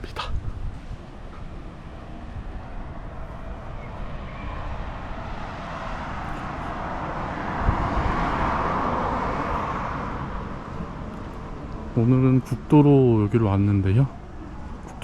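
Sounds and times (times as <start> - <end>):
car passing by: 0.8 - 12.1.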